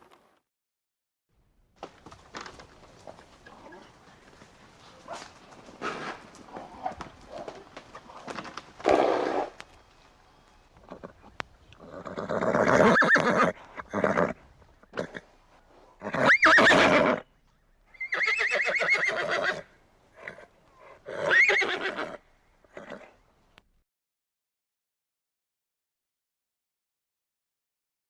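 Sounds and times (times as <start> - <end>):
horse neighing: 10.8 - 15.3, 16.0 - 17.3, 17.9 - 23.2.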